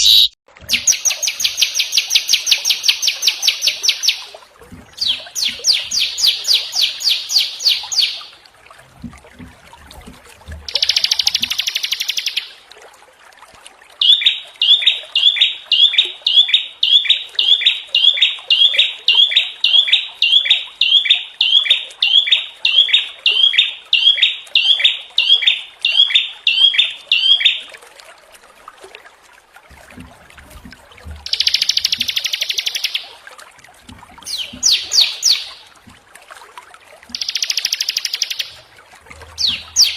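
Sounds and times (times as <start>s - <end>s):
songbirds singing: 4.9s - 8.4s, 10.7s - 12.5s, 14.0s - 27.6s, 31.3s - 33.1s, 34.2s - 35.8s, 37.1s - 39.9s.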